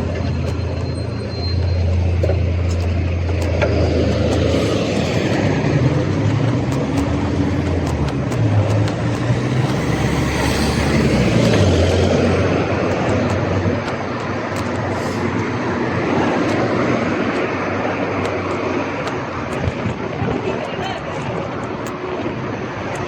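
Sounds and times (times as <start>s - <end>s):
road and tyre noise: 0.0s - 23.0s
sharp clicks and rattles: 0.0s - 23.0s
vehicle engine humming: 0.0s - 23.0s.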